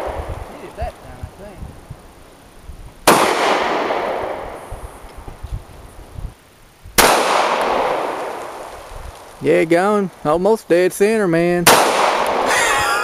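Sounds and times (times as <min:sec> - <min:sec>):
gunshots with long echo: 0:03.0 - 0:04.7, 0:07.0 - 0:08.8, 0:11.6 - 0:12.7.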